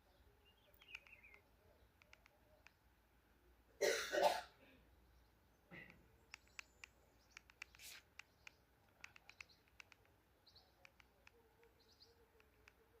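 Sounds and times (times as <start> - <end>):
trilled bird calls: 0.4 - 2.7.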